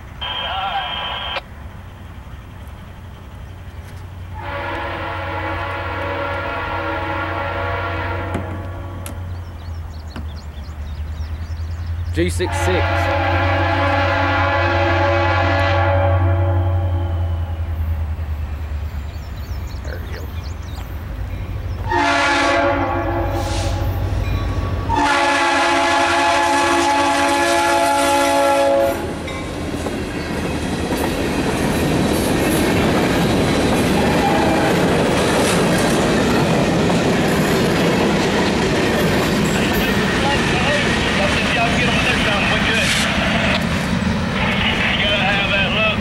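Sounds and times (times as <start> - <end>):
low locomotive engine rumble: 0.0 - 46.0
locomotive horn blasts: 4.4 - 9.0, 12.4 - 17.6, 21.8 - 24.0, 24.9 - 29.2, 34.0 - 34.9
train wheels clattering on rails: 29.2 - 44.8.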